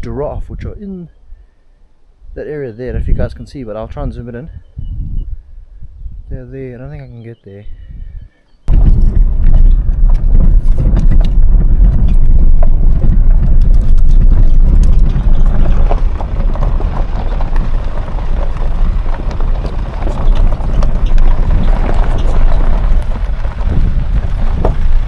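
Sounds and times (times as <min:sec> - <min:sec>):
car driving on dirt road: 0:08.7 - 0:25.0
ticks and rattles from road: 0:08.7 - 0:25.0.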